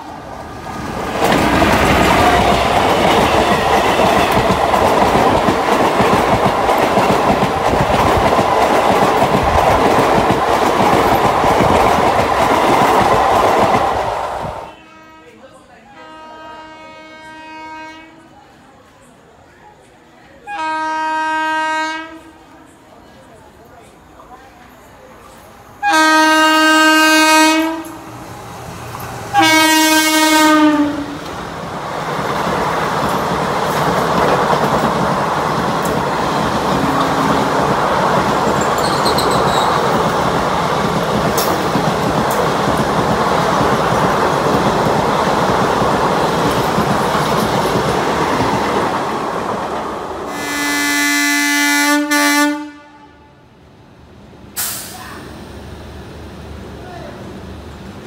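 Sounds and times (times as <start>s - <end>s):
train wheels rumbling on rail: 0.0s - 14.9s, 21.7s - 53.0s
train horn blasts: 14.6s - 15.4s, 16.0s - 18.3s, 20.5s - 22.5s, 25.8s - 28.0s, 29.3s - 31.2s, 36.7s - 37.6s, 50.3s - 53.4s.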